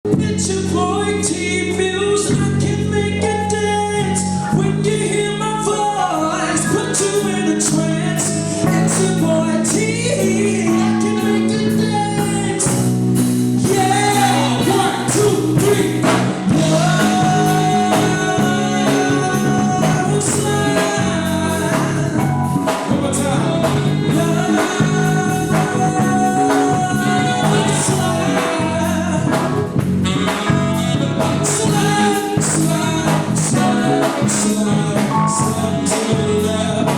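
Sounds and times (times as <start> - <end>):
live soul band with singing: 0.1 - 36.9.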